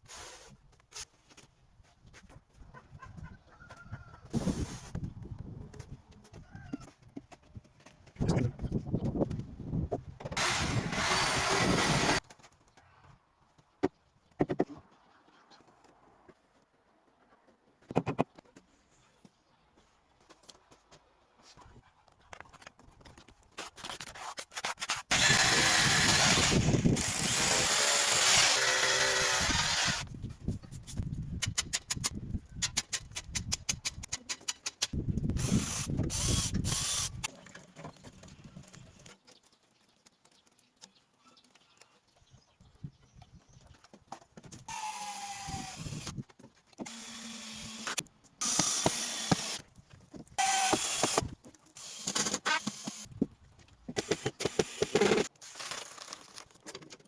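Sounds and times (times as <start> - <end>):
grinding or drilling noise: 10.4 - 12.2, 25.1 - 30.1, 35.4 - 37.3, 44.7 - 46.1, 46.8 - 49.6, 50.4 - 53.0, 54.0 - 55.3.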